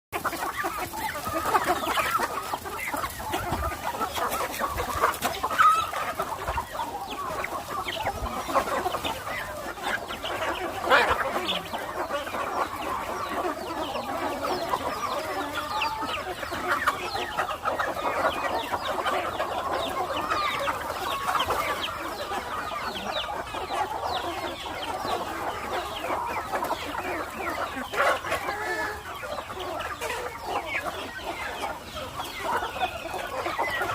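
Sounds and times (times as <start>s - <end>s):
chickens clucking: 0.1s - 33.9s.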